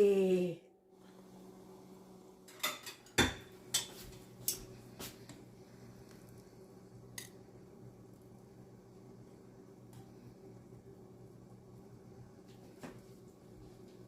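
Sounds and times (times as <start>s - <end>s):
faint steady hum: 0.0s - 14.0s
kitchenware clinking: 2.5s - 4.7s.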